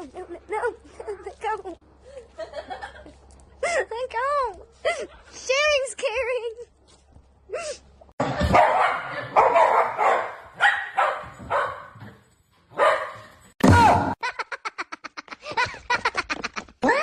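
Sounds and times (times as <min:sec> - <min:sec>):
dog barking: 0:08.4 - 0:12.0, 0:12.7 - 0:13.3.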